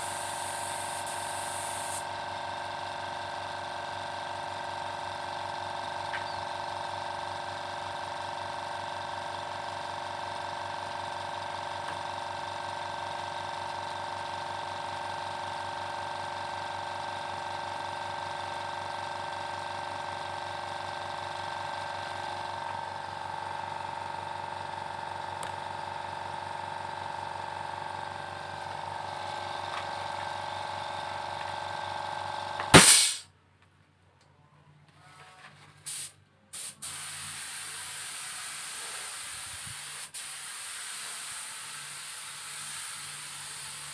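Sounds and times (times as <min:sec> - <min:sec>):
air compressor humming: 0:00.0 - 0:33.2, 0:35.8 - 0:43.9
sharp loud click: 0:32.6 - 0:33.3.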